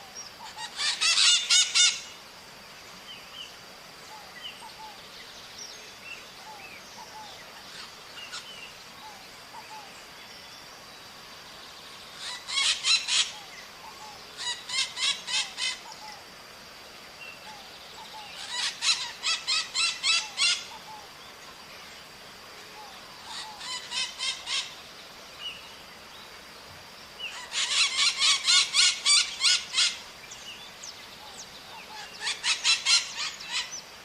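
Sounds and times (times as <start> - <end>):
parrots screeching: 0.5 - 2.1, 12.2 - 13.4, 14.4 - 15.8, 18.4 - 20.7, 23.3 - 24.7, 27.3 - 30.0, 32.0 - 33.7.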